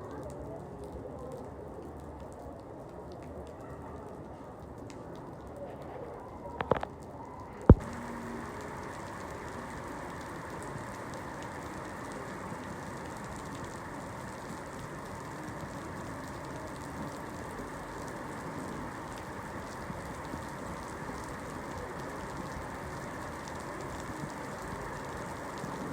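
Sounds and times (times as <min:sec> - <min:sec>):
steady rain hiss: 0:06.4 - 0:25.9.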